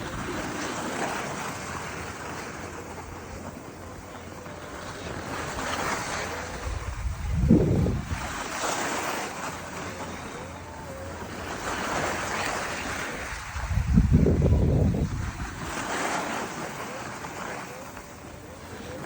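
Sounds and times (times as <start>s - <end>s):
low wind buffet: 0.0s - 19.0s
wind rushing over microphone: 5.0s - 9.7s, 11.5s - 16.7s.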